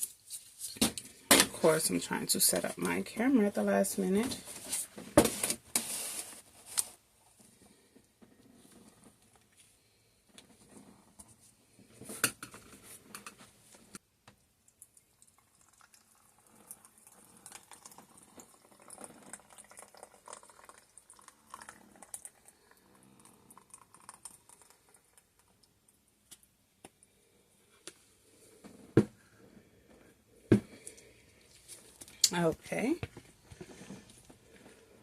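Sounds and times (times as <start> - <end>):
soft scraping or rustling: 4.3 - 9.8.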